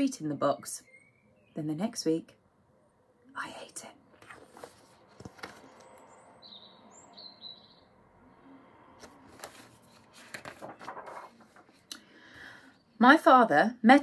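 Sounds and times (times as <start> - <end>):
faint bird chirps: 0.3 - 1.9, 5.6 - 9.0
book rustling and knocking: 4.2 - 6.0, 9.0 - 11.8.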